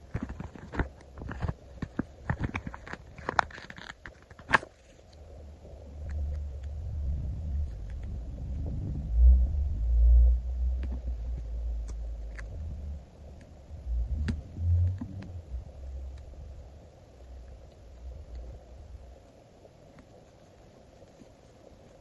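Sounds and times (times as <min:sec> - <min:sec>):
faint small ticks: 0:06.0 - 0:06.8.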